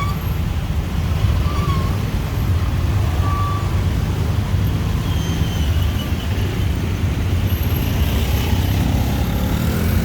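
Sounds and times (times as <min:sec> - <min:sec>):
motorbike and car engines passing: 0:05.6 - 0:10.0.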